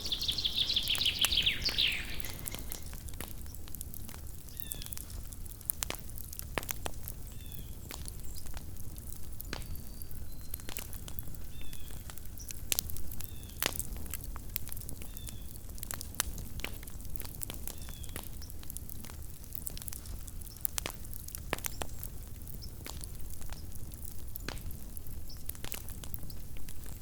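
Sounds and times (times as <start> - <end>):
bird high falling call: 0.0 - 3.0
campfire crackling and popping: 0.0 - 27.0.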